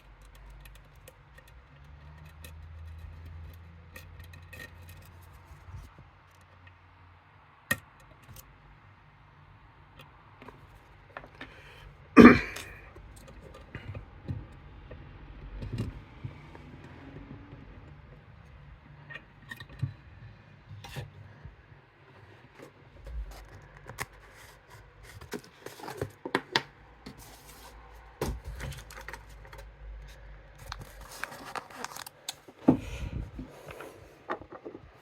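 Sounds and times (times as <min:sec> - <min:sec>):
lock picks clicking and scraping: 0:00.0 - 0:05.6.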